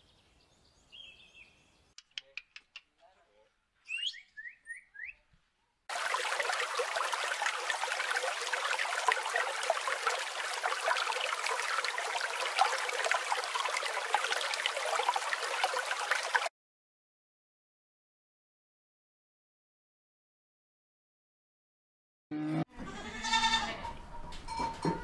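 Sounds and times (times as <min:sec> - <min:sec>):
water trickling and splashing: 0:05.9 - 0:16.5.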